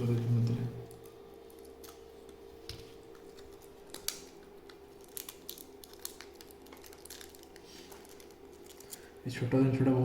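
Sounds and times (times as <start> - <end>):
steady low hum: 0.0 - 10.0
packaging handling clicks: 3.1 - 9.1.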